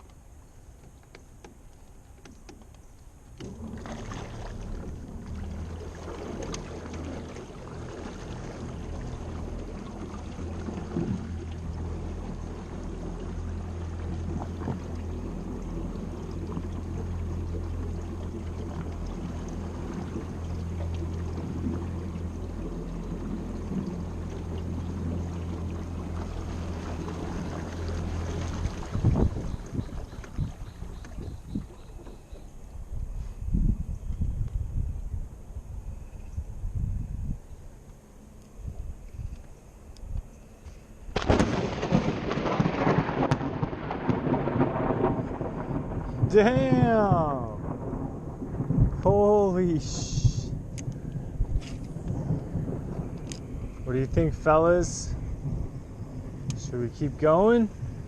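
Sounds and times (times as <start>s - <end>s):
electric boat motor humming: 0.0s - 46.0s
water swishing along hull: 0.0s - 58.0s.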